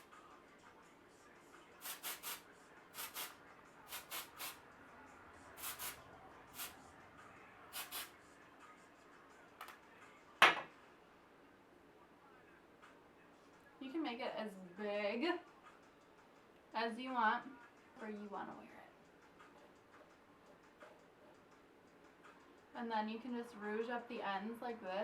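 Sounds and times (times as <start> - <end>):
aerosol spray hissing: 1.8 - 4.6, 5.6 - 6.8, 7.7 - 8.1.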